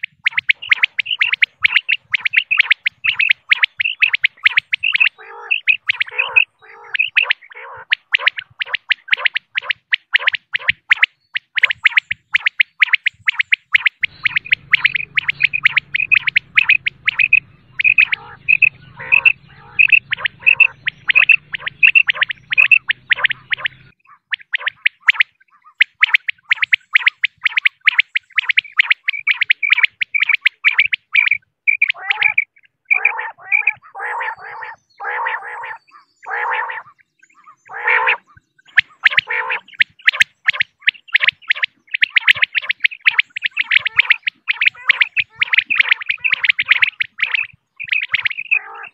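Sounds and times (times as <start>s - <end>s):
quail calling: 0.0s - 48.9s
low hum: 14.0s - 23.9s.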